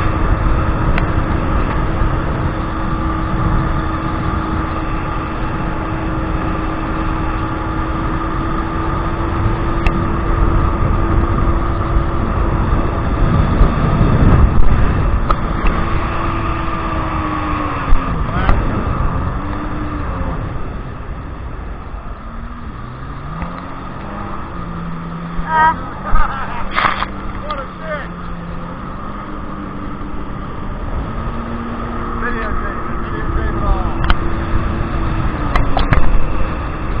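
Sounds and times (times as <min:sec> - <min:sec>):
jet ski engine running: 0:00.0 - 0:37.0
water rushing: 0:00.0 - 0:37.0
wind: 0:00.0 - 0:37.0.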